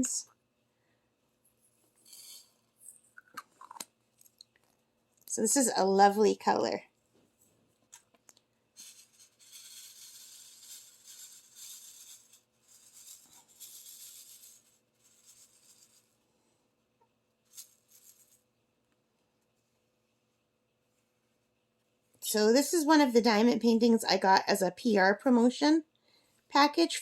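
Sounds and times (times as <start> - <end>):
small beads rattling in plastic tray: 8.8 - 16.0, 17.5 - 18.4.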